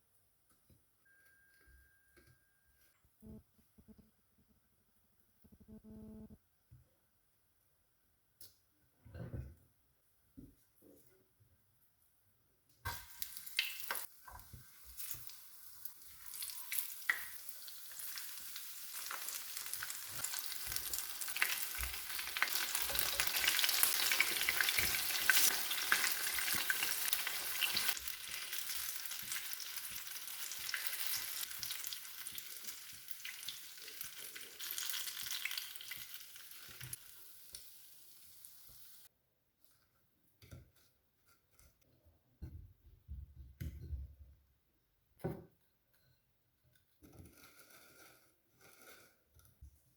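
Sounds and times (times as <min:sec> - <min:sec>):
battered fruit sizzling in oil: 0:12.9 - 0:39.1.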